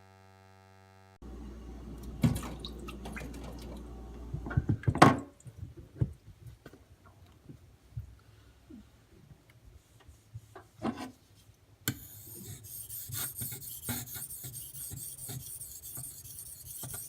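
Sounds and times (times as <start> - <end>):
low steady hum: 0.0 - 5.8
water splashing and dripping: 2.0 - 3.9
sharpening stone knocking: 11.9 - 17.0.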